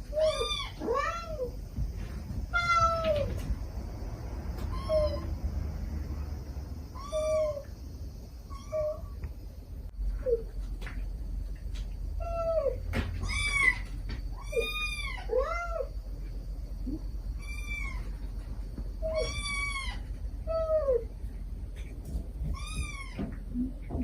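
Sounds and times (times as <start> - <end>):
kittens meowing: 0.0 - 1.6, 2.5 - 3.5, 4.6 - 5.5, 6.9 - 7.8, 8.5 - 9.2, 12.2 - 16.0, 16.8 - 18.3, 19.0 - 21.1, 22.4 - 24.0
steady low hum: 0.0 - 24.0.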